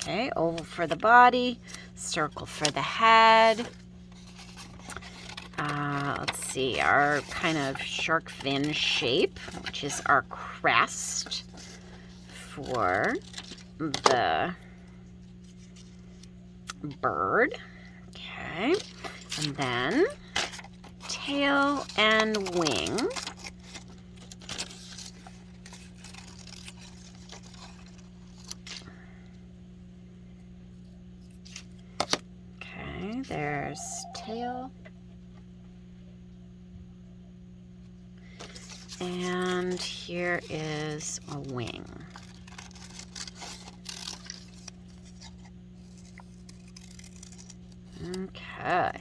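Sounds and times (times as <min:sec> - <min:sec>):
paper rustling: 0:00.0 - 0:16.4, 0:18.6 - 0:29.2, 0:38.2 - 0:49.0
steady low hum: 0:00.0 - 0:49.0
scissors snipping paper: 0:10.8 - 0:14.5, 0:18.7 - 0:28.8, 0:38.4 - 0:48.7.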